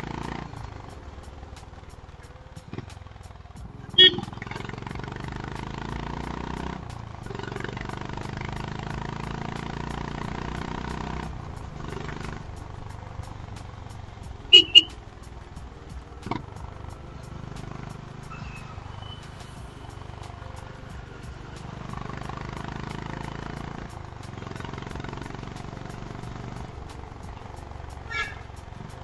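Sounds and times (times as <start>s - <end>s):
motorcycle engine running: 0.0s - 29.0s
short high beeps: 4.0s - 4.2s, 14.5s - 14.9s.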